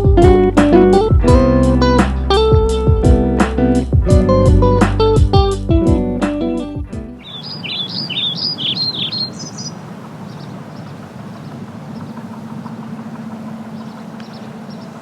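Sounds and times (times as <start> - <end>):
small bird chirping: 7.2 - 12.8, 13.6 - 15.0.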